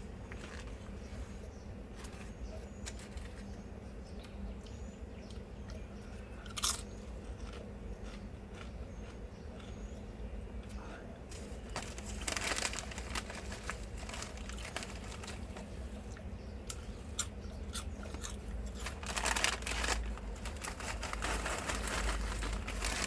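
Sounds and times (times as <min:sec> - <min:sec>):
paper wrapper crinkling: 0:11.3 - 0:16.0, 0:18.7 - 0:23.0.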